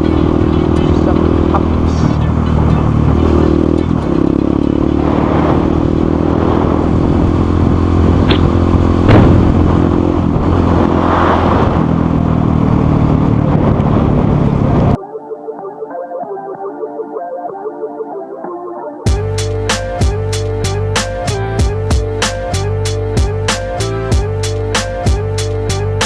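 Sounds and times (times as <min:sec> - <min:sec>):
motorcycle engine running: 0:00.0 - 0:10.9, 0:11.8 - 0:15.0, 0:19.1 - 0:23.5
sharp knock: 0:09.1 - 0:09.5.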